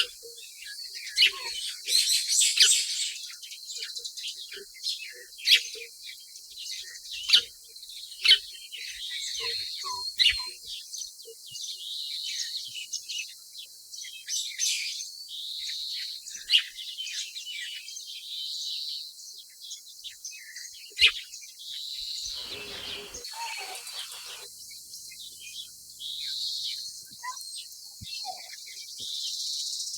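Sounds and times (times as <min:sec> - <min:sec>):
small birds chirping: 0:22.0 - 0:24.5.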